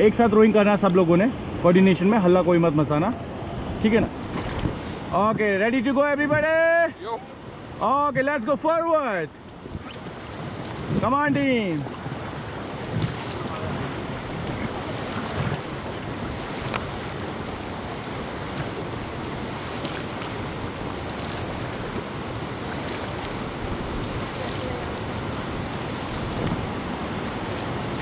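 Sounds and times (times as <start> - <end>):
river water rushing: 1.4 - 28.0
wind buffeting microphone: 2.3 - 6.6, 9.3 - 28.0.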